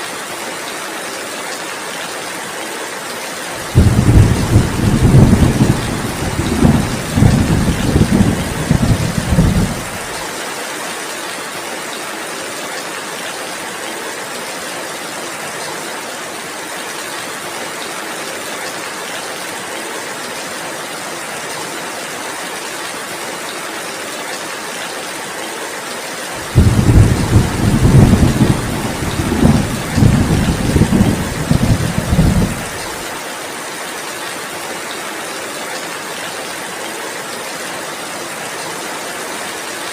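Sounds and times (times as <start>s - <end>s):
heavy rain: 0.0s - 39.9s
rolling thunder: 3.7s - 10.2s, 26.4s - 32.9s.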